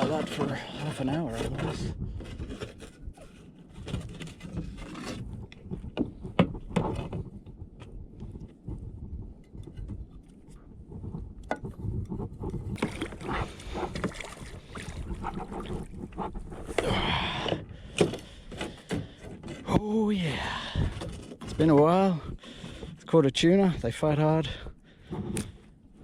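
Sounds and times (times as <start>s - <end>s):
knocks and scrapes on hull: 0.0s - 20.0s, 20.6s - 23.1s, 24.9s - 26.0s
water sloshing and splashing: 12.5s - 19.7s.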